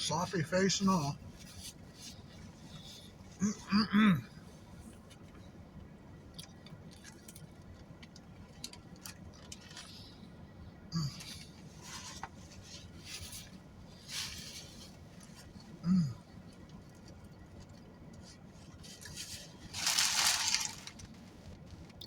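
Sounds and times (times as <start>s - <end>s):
chewing and handling food: 4.7s - 10.4s, 11.1s - 22.0s
man humming: 15.8s - 16.2s.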